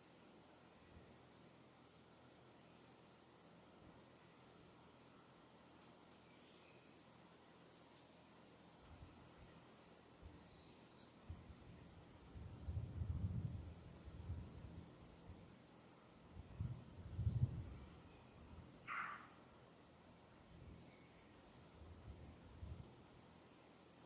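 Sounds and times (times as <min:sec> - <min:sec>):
wind gusts rumbling on microphone: 0:11.2 - 0:15.5, 0:16.3 - 0:18.0.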